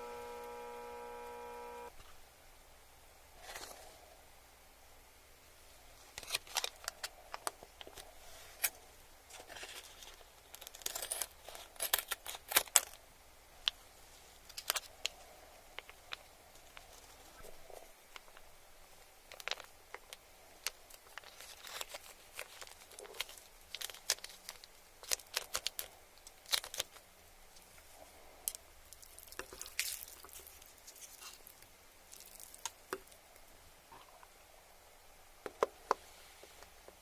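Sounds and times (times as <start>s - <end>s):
crunching while chewing: 20.7s - 27.0s, 28.5s - 33.2s.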